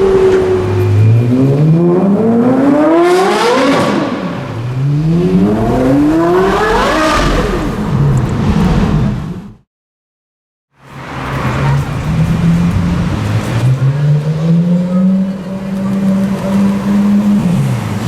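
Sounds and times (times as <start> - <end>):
sports car engine revving: 0.0 - 9.4.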